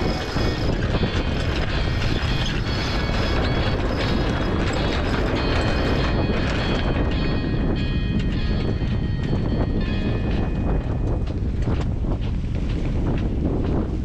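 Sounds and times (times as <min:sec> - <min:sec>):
boat gear creaks and clicks: 0:00.0 - 0:07.4, 0:11.0 - 0:13.3
wind buffeting microphone: 0:00.0 - 0:14.0.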